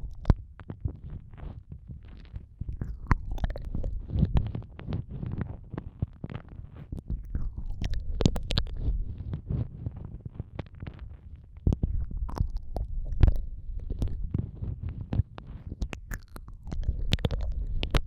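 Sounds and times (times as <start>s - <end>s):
wet mouth licking and smacking: 2.8s - 4.5s, 7.1s - 9.4s, 11.7s - 14.4s, 15.6s - 18.0s.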